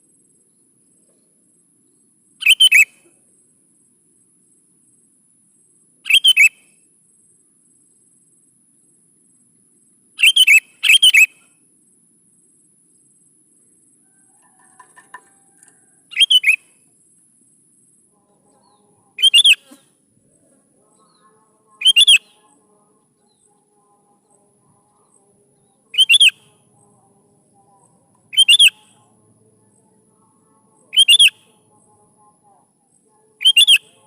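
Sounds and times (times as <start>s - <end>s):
bulbul singing: 2.4s - 2.9s, 14.7s - 16.6s, 18.3s - 34.0s.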